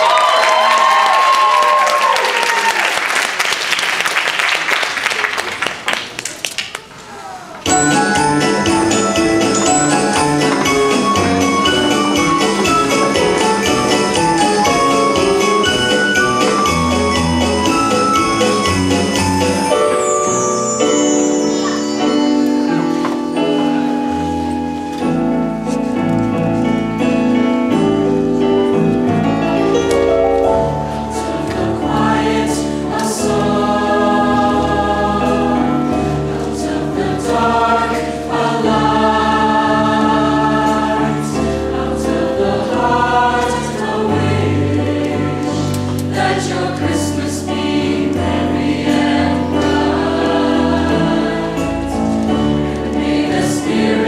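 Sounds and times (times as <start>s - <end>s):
choir singing in harmony: 7.7s - 24.8s, 30.6s - 54.0s
instrumental accompaniment with bass: 7.7s - 54.0s.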